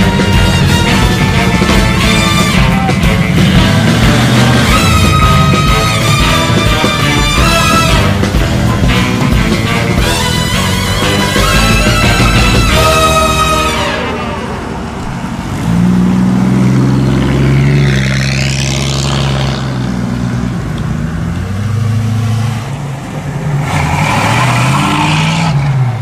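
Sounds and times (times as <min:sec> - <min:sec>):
car engines at low revs: 0:00.0 - 0:10.5, 0:13.6 - 0:26.0
music: 0:00.0 - 0:15.0
car engine revving: 0:00.0 - 0:26.0.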